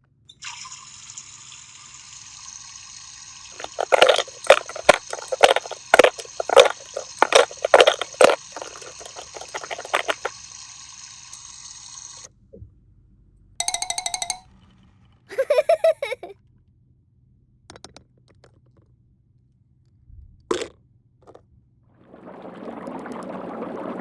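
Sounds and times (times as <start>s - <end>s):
water running from faucet: 0.4s - 12.3s
water splashing: 3.5s - 10.4s, 22.1s - 24.0s.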